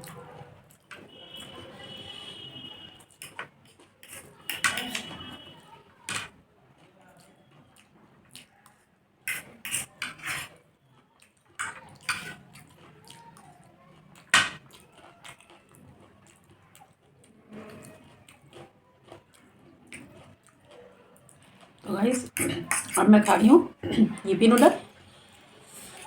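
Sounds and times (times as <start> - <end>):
wet chewing mouth noises: 6.8 - 8.7, 12.4 - 23.0.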